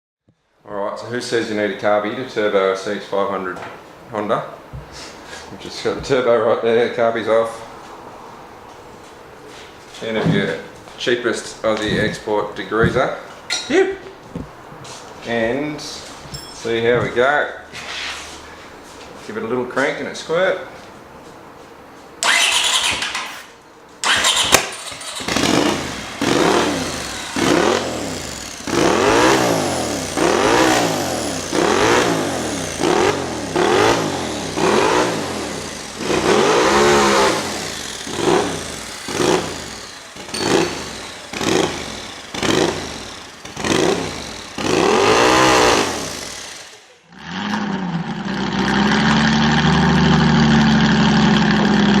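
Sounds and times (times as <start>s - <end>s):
motorcycle engine firing and revving: 24.0s - 52.0s.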